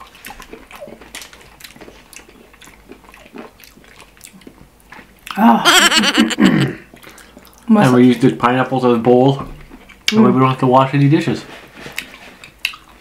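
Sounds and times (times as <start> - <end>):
chewing juicy fruit: 0.0 - 5.4, 9.4 - 10.6, 11.8 - 13.0.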